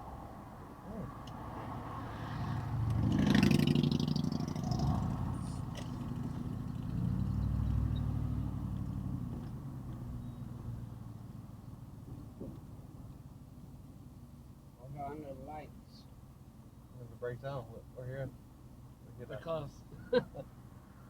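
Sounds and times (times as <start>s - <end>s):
car engine accelerating: 0.9s - 12.0s.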